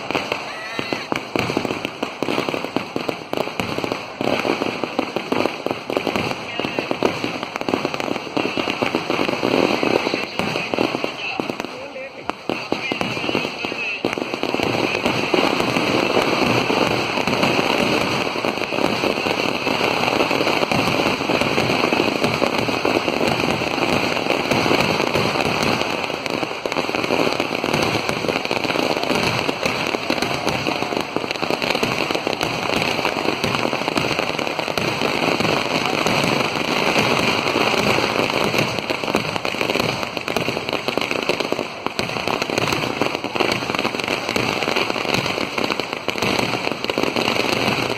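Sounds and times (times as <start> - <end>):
firecrackers crackling: 0.0 - 47.9.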